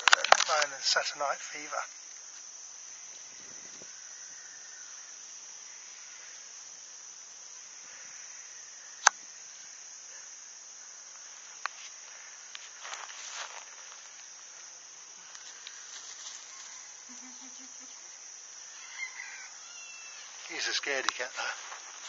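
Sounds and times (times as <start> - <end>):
insects droning: 0.0 - 22.0
light rustling: 11.6 - 17.3.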